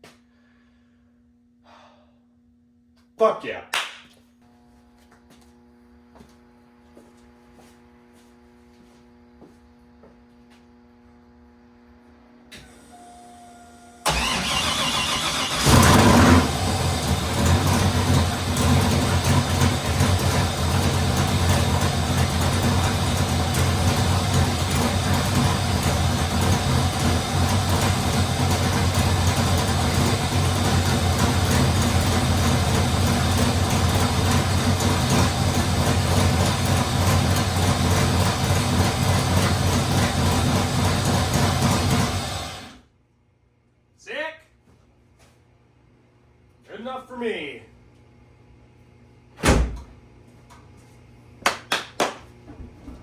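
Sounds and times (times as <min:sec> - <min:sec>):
starter motor cranking: 0:14.0 - 0:17.7
car engine idling: 0:14.0 - 0:42.7.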